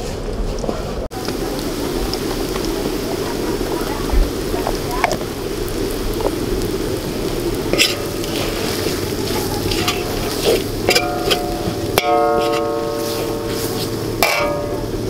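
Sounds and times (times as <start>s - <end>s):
food sizzling in a wok: 1.1s - 15.0s
metal spatula scraping a pan: 7.7s - 15.0s
spatula clinking on wok: 8.9s - 15.0s.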